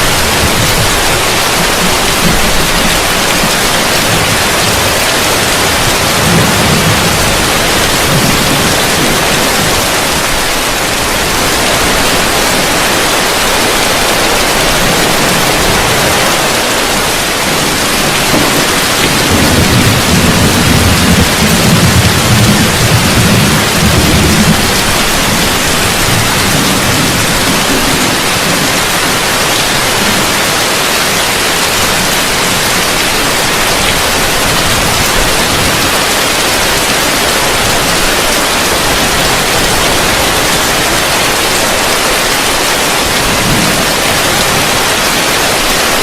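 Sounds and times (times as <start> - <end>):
distant thunder rumbles: 0.0 - 31.2
heavy rain on a roof: 0.0 - 46.0.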